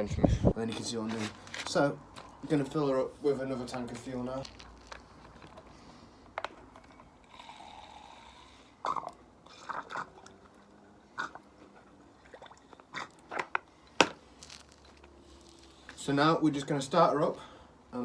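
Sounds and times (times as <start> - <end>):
fuel trickling into tank: 6.9 - 15.8.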